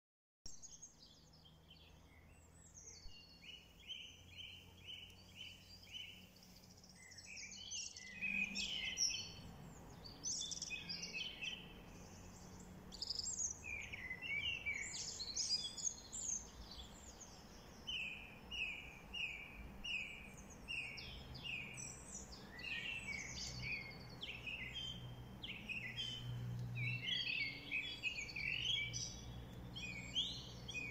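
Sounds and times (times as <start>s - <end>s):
birds twittering: 0.5s - 30.9s.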